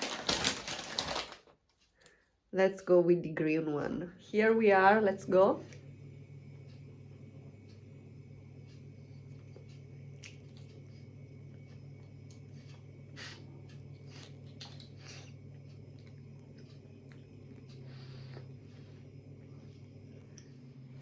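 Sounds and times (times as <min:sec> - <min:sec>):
candy wrapper clicks and crackles: 0:00.0 - 0:01.5
steady low hum: 0:01.8 - 0:21.0.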